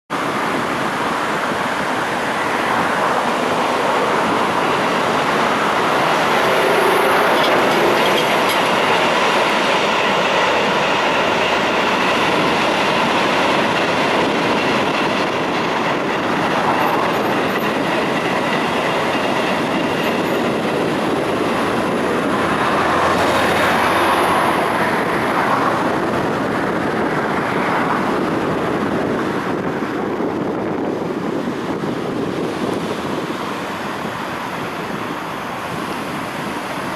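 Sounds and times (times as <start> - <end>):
train rumble and wheel clatter: 0.1 - 36.9.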